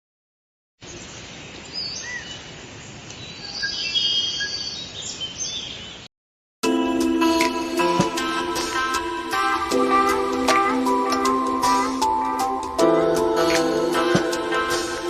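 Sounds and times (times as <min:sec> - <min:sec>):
birds chirping and trilling: 0:00.8 - 0:06.1.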